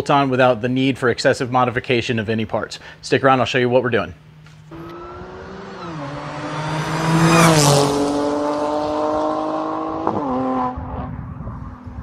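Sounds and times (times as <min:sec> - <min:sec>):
car engine passing by: 0:04.4 - 0:12.0.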